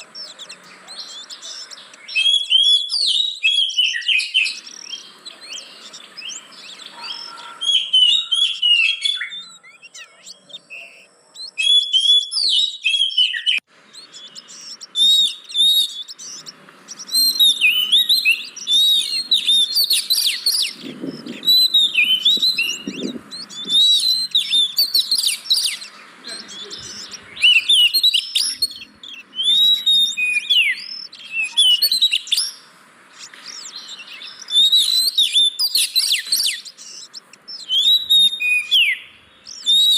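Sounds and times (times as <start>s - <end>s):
bird singing whistles and chatter: 0.0s - 39.9s.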